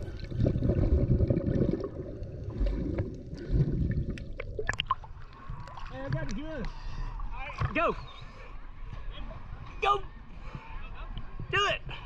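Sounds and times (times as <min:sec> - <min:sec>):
sea water sloshing and gurgling: 0:00.0 - 0:08.4.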